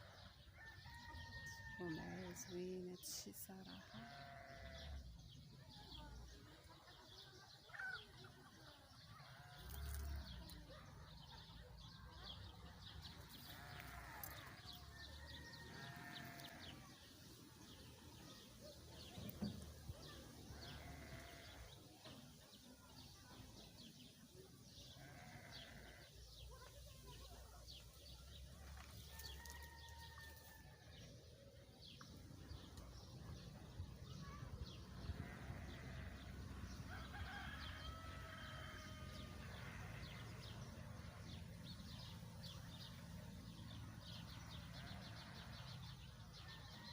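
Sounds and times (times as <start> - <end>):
birds chirping: 0.0 - 6.1, 9.3 - 30.6, 31.5 - 46.6
livestock bleating: 3.7 - 5.0, 13.4 - 14.6, 15.6 - 16.9, 20.5 - 21.7, 25.0 - 26.2, 35.0 - 36.4, 39.6 - 40.3.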